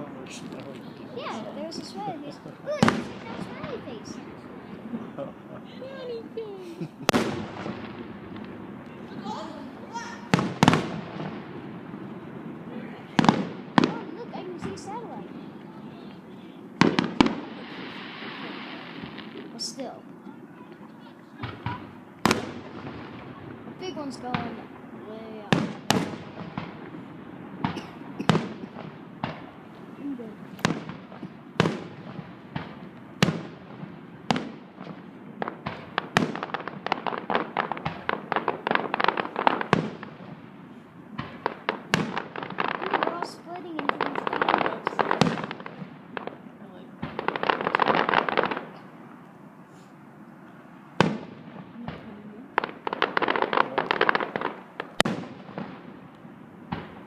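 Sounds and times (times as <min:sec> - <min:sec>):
fireworks crackle of quick pops: 0:00.0 - 0:04.9, 0:05.9 - 0:09.3, 0:10.0 - 0:11.7, 0:13.1 - 0:16.2, 0:16.8 - 0:50.0, 0:51.0 - 0:57.0
fireworks bangs with echoes: 0:00.0 - 0:49.1, 0:50.9 - 0:57.0.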